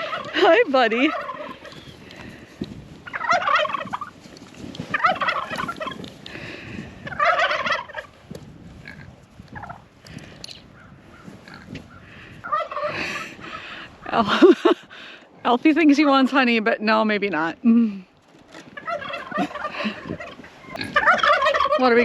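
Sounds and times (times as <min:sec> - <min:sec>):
quiet turkey calls: 0:00.0 - 0:00.4, 0:01.0 - 0:02.1, 0:03.0 - 0:04.1, 0:04.9 - 0:06.0, 0:07.0 - 0:08.1, 0:10.5 - 0:13.7, 0:18.8 - 0:22.0
turkeys gobbling: 0:00.0 - 0:02.2, 0:03.0 - 0:04.2, 0:04.9 - 0:06.2, 0:07.0 - 0:08.2, 0:09.5 - 0:14.8, 0:18.5 - 0:22.0.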